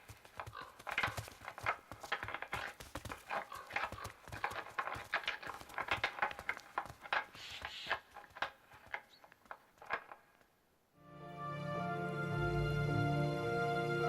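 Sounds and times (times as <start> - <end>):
antlers clacking together: 0.0 - 10.4.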